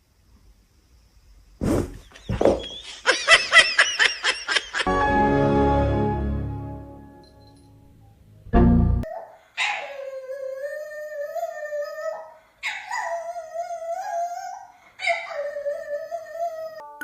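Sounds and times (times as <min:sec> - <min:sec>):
dog howling: 0:09.1 - 0:16.8.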